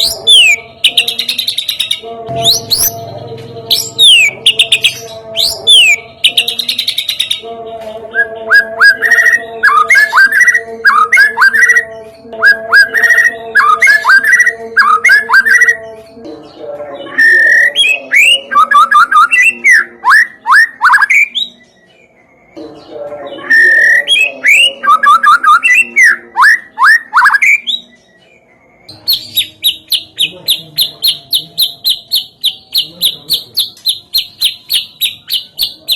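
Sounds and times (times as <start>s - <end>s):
recorded songbird song: 0.0s - 35.9s.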